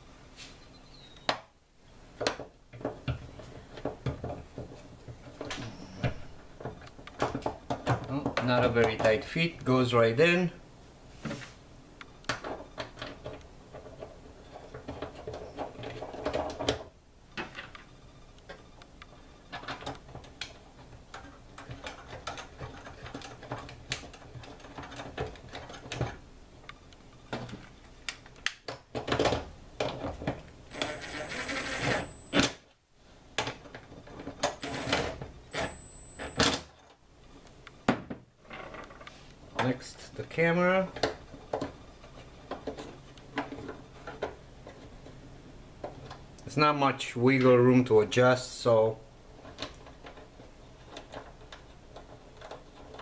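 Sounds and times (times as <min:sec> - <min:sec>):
plastic parts clicking and tapping: 0:19.5 - 0:30.9, 0:40.7 - 0:45.2, 0:49.4 - 0:53.0.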